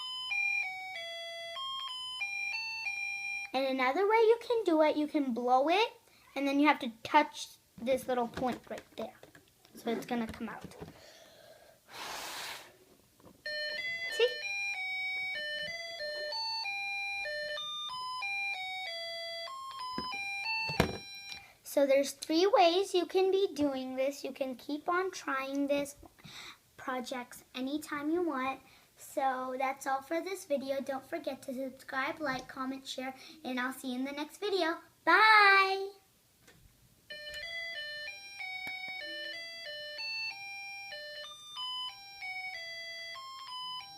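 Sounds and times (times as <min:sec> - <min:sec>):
electronic beeping melody: 0:13.4 - 0:21.4, 0:37.1 - 0:43.9.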